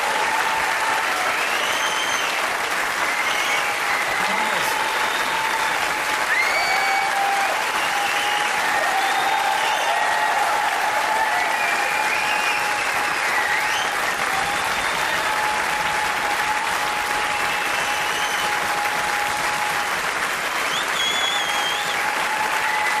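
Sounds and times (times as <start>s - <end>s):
audience applauding: 0.0s - 23.0s
high whistles: 1.3s - 2.4s, 3.1s - 4.2s, 7.7s - 10.0s, 11.5s - 15.1s, 17.3s - 18.6s, 20.7s - 22.0s.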